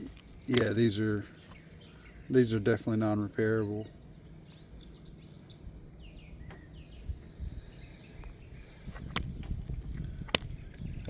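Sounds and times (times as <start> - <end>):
low background rumble: 0.0 - 11.0
faint bird chirps: 3.2 - 9.9.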